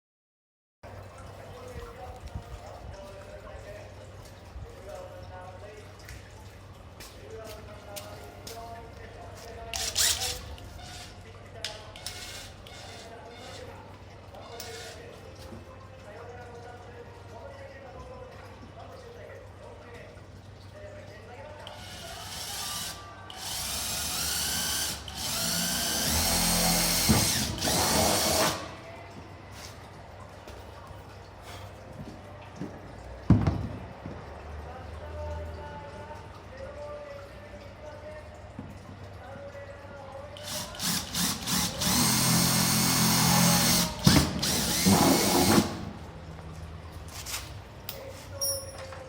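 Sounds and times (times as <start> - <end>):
power drill bursts: 9.7 - 11.1, 12.0 - 13.6, 21.7 - 28.7, 40.4 - 45.9.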